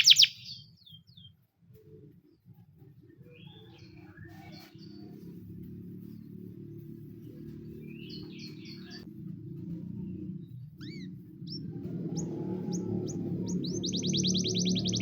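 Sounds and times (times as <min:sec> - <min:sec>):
canary singing: 0:00.0 - 0:01.0, 0:10.2 - 0:15.0.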